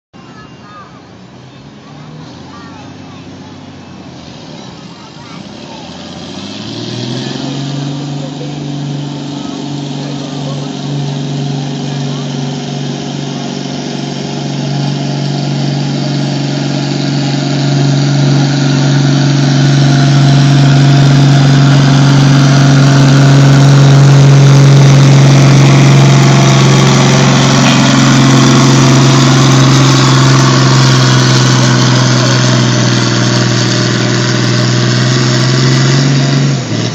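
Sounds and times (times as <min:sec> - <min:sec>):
truck engine running hard: 0:00.1 - 0:36.9.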